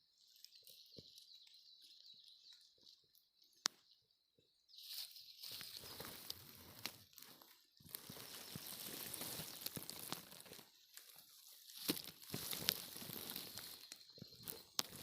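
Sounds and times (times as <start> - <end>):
leaf litter rustling: 4.8 - 15.0.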